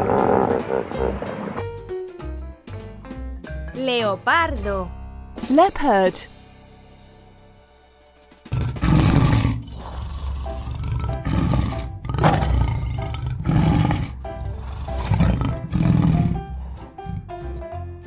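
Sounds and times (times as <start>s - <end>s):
leopard roaring: 0.0s - 1.6s, 8.5s - 17.3s
background music: 0.0s - 18.0s.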